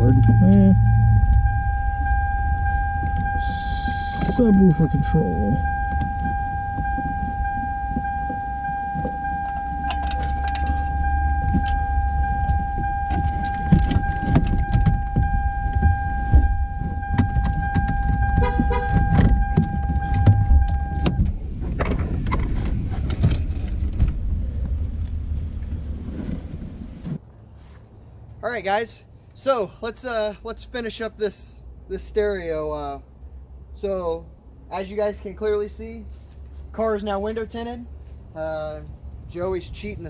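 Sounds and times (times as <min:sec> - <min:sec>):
steady high beep: 0:00.0 - 0:21.2
deep subwoofer bass rumble: 0:00.0 - 0:27.1
handling clicks and knocks: 0:09.0 - 0:11.8, 0:12.5 - 0:16.0, 0:17.1 - 0:20.4.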